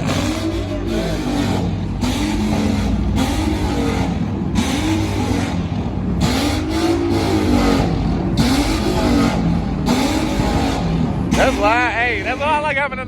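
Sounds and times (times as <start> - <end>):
car engine revving: 0.0 - 13.0
traffic noise: 0.0 - 13.0.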